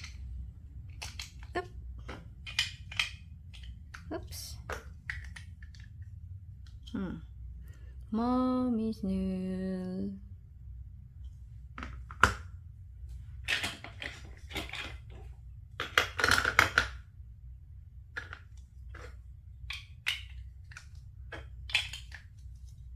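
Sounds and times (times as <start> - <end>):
plastic bricks clicking and clattering: 0.0 - 7.0, 13.4 - 17.1, 18.1 - 22.9.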